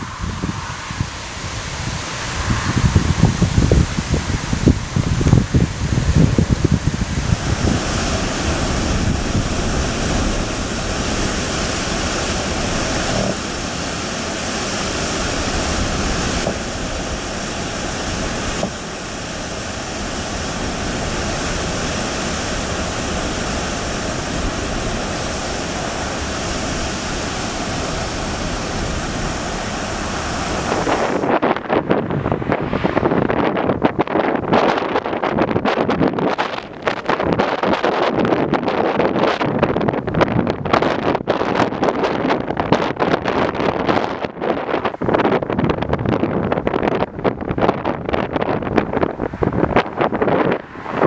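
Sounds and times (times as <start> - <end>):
driving rain: 0.0 - 32.4
strong wind: 0.0 - 51.0
wind gusts buffeting microphone: 0.0 - 51.0.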